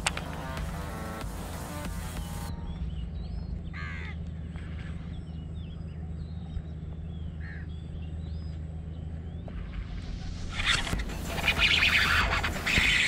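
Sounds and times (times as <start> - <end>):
birds chirping and whistling: 0.0 - 13.0
steady low hum: 0.0 - 13.0.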